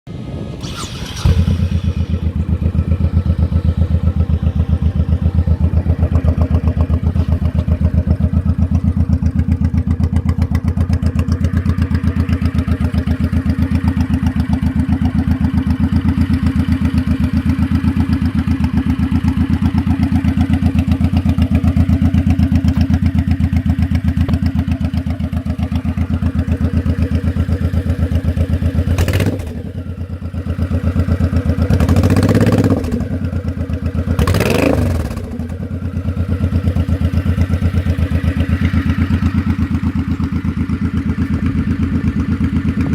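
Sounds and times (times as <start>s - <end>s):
motorcycle engine starting and idling: 0.2s - 42.9s.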